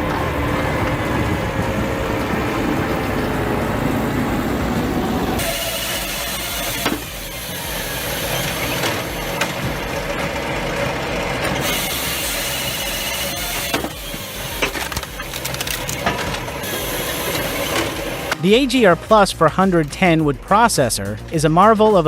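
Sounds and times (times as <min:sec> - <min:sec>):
heavy machine running: 0:00.0 - 0:20.2
wood cracking and knocking: 0:05.4 - 0:18.4.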